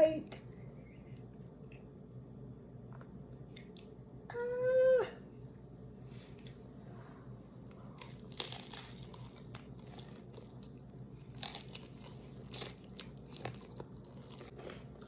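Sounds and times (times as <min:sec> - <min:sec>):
chewing and crunching chips: 0:07.6 - 0:15.0.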